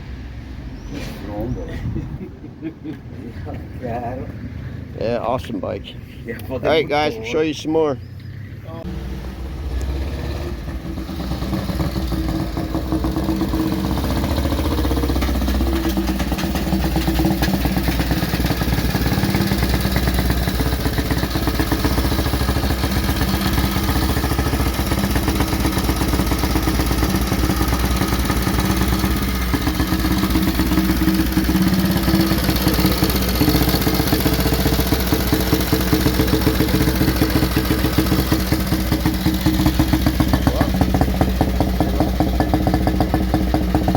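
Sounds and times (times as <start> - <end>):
motorcycle engine idling: 10.6 - 43.9.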